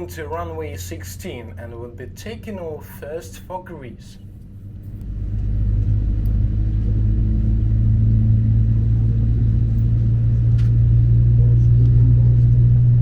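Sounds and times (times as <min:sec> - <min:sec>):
jet engines spooling up: 0:04.1 - 0:13.0.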